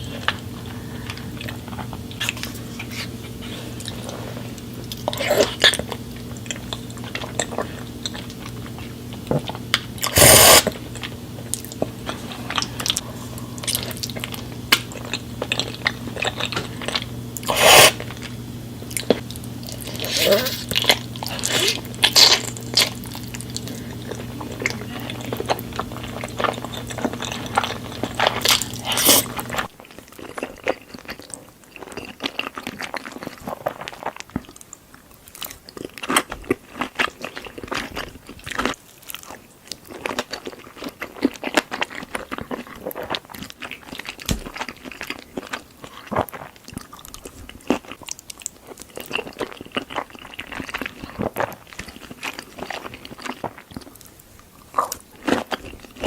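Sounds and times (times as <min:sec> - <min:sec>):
steady low hum: 0:00.0 - 0:29.8
person biting and chewing: 0:09.4 - 0:10.8, 0:11.6 - 0:18.3, 0:25.4 - 0:31.2
wet mouth sounds: 0:10.0 - 0:10.8, 0:17.4 - 0:18.1, 0:19.2 - 0:23.7.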